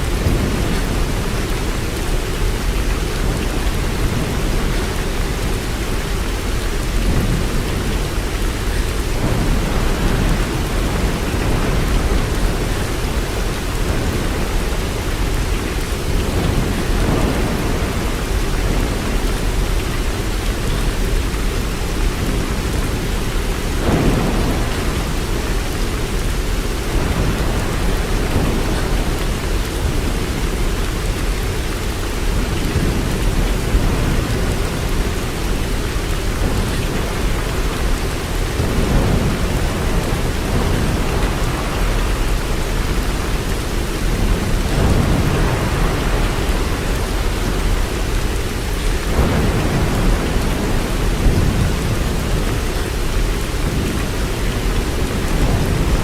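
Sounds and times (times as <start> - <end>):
heavy rainfall: 0.0 - 56.0.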